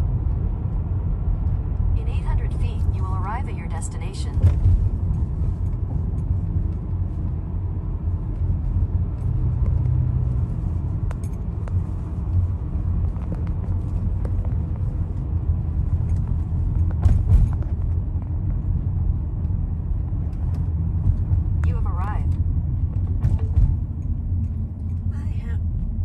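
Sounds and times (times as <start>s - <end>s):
car interior engine and tyre rumble: 0.0s - 26.0s.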